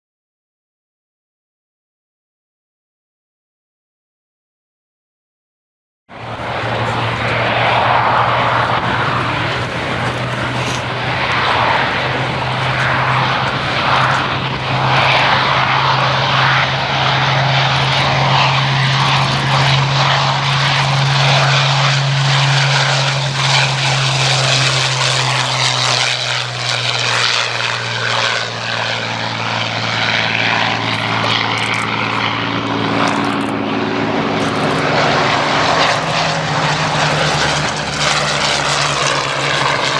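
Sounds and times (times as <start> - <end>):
propeller plane engines droning: 6.1 - 39.9.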